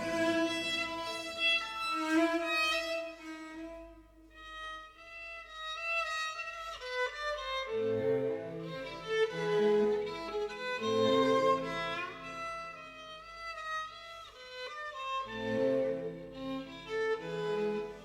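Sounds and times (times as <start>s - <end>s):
lower strings: 0.0s - 3.9s
violin playing slow held notes: 0.0s - 6.2s.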